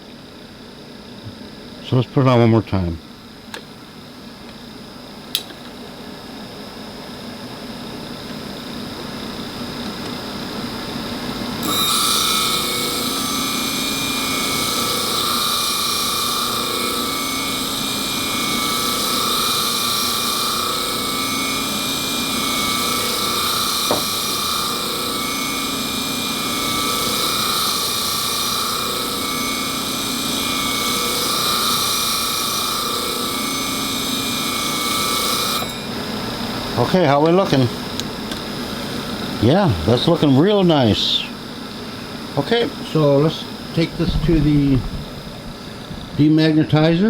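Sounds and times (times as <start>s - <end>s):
sharp click: 5.3s - 5.7s
high motor whine: 7.4s - 47.0s
blade grinding on grinding wheel: 11.6s - 38.0s.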